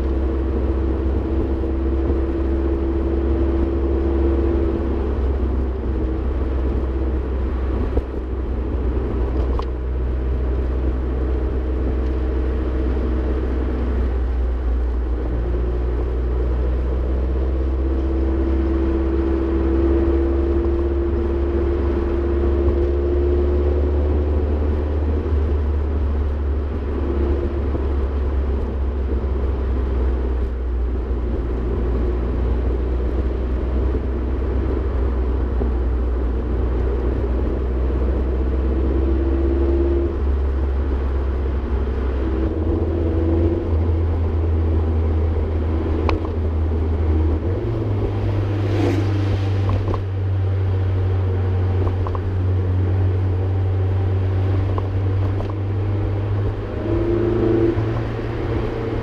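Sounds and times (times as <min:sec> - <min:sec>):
car exhaust drone in cabin: 0:00.0 - 0:59.0
turbo whoosh: 0:47.8 - 0:50.2.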